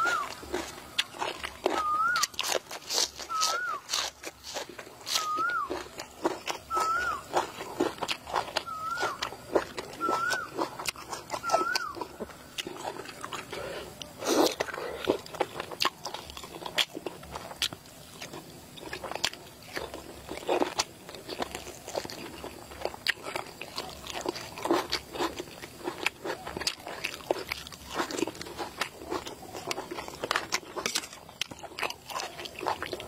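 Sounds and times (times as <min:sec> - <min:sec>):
person chewing: 0:00.0 - 0:33.0.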